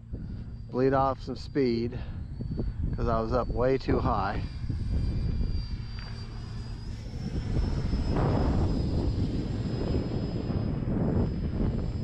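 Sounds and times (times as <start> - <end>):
electric ducted fan whine: 0.0 - 12.0
wind rumble on microphone: 0.0 - 12.0.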